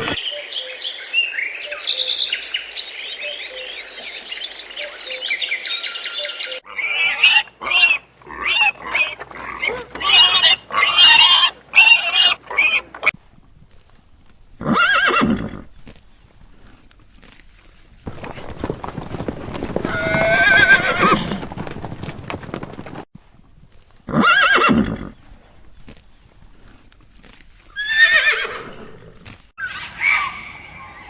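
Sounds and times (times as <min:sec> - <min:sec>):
high animal calls: 0:06.2 - 0:13.1, 0:19.8 - 0:21.4, 0:29.6 - 0:31.0.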